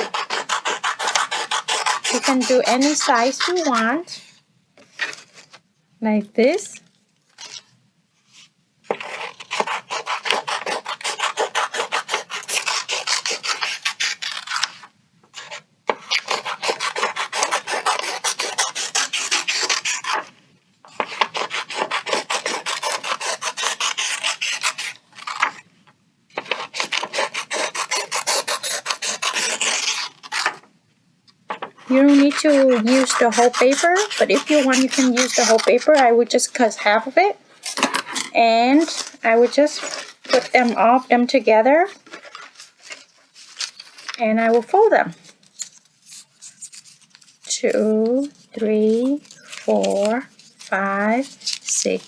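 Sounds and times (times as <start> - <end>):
scissors cutting paper: 0.0 - 4.0, 8.9 - 20.3, 20.9 - 25.6, 26.4 - 30.6, 31.5 - 41.0, 45.5 - 52.0.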